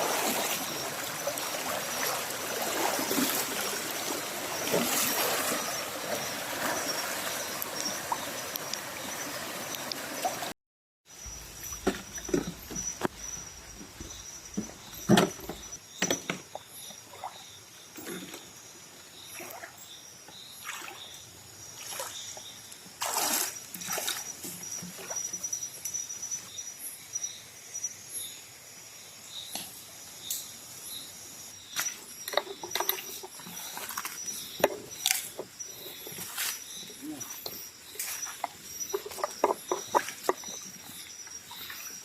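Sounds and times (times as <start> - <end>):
high-pitched insect trill: 0.0 - 10.4, 11.1 - 18.0, 18.6 - 42.0
splashing in shallow water: 0.0 - 10.5, 20.6 - 21.2, 21.8 - 25.3, 31.8 - 42.0.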